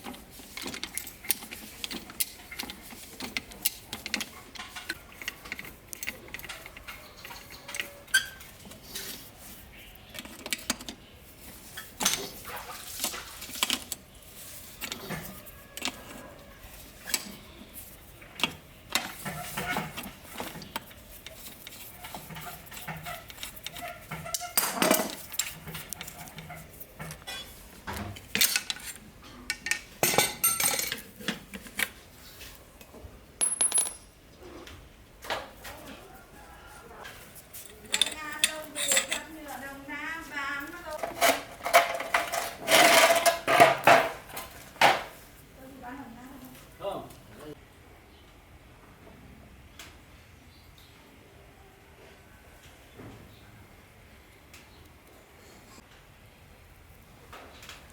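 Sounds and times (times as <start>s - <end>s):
small metal parts clinking: 28.3s - 31.2s, 33.4s - 34.2s, 37.5s - 39.6s
metal clanks: 37.6s - 39.4s.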